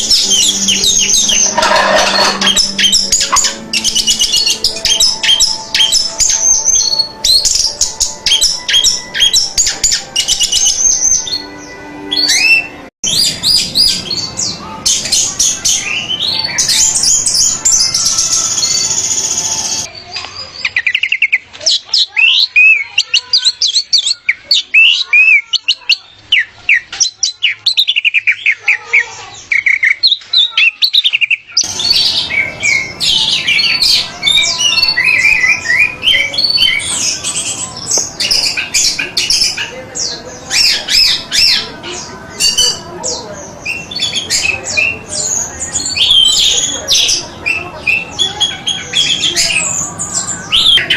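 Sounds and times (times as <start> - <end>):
thrush singing: 0.0 - 19.9, 31.6 - 50.9.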